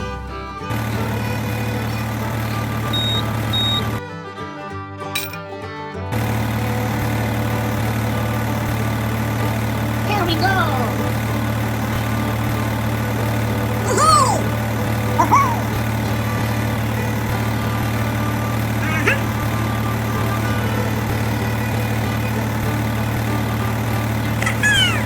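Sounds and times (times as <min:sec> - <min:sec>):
small engine idling: 0:00.0 - 0:04.4, 0:06.0 - 0:25.0
short high calls: 0:13.8 - 0:16.0, 0:18.6 - 0:20.0, 0:24.4 - 0:25.0.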